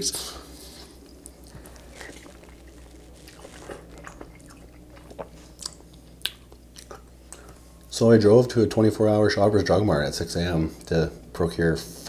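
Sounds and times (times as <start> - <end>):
low steady hum: 0.0 - 12.0
wet chewing and lip smacks: 1.0 - 7.5
sharp mouth clicks: 3.3 - 7.1.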